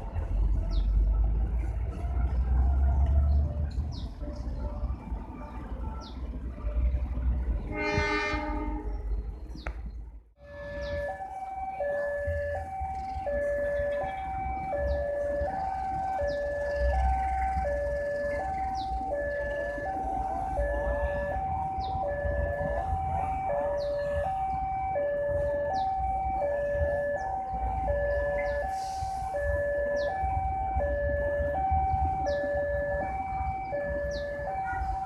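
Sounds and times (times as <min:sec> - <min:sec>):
level crossing two-tone alarm: 0:10.5 - 0:35.0.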